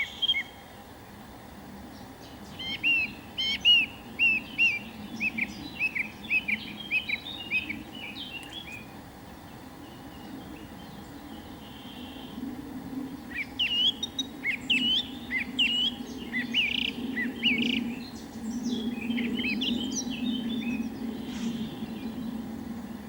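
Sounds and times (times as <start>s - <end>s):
birds chirping: 0.0s - 23.0s
low background drone: 0.0s - 23.0s.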